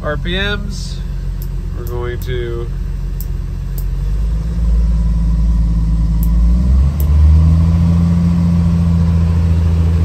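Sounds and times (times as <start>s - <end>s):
car engine revving up: 3.8s - 10.0s.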